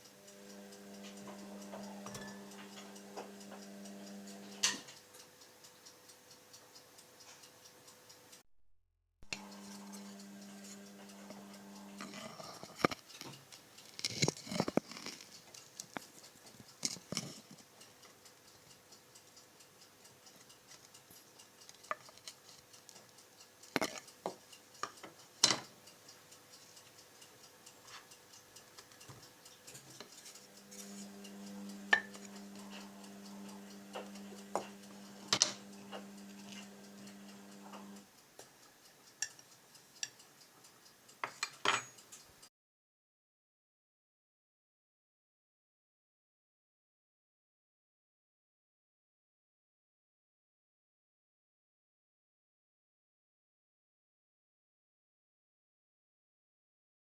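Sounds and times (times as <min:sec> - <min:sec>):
steady low hum: 0:00.0 - 0:04.9, 0:09.2 - 0:12.9, 0:30.0 - 0:38.0.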